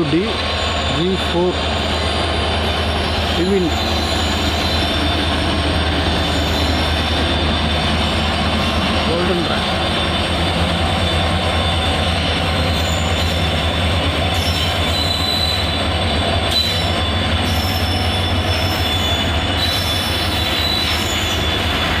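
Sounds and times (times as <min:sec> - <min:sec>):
freight wagons rumbling on rails: 0:00.0 - 0:22.0
wheel squeals: 0:01.7 - 0:09.0, 0:09.7 - 0:22.0.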